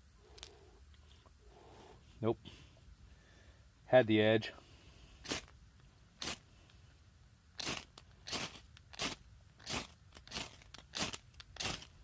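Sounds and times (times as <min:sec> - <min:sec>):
saw blade scraping firesteel: 0:07.6 - 0:11.9.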